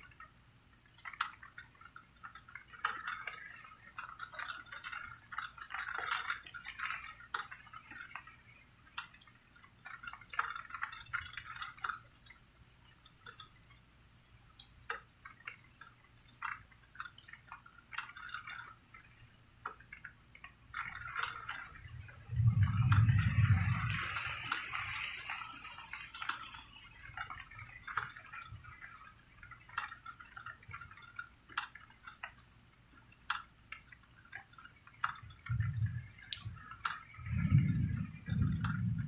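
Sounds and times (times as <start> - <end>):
rain dripping and pattering: 0.0 - 39.0
faint low hum: 19.0 - 29.6, 35.1 - 39.0.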